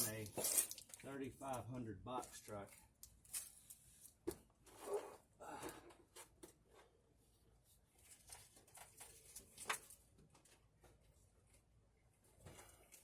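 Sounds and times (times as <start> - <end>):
faint clicks and scrapes of tools: 0.0 - 6.9.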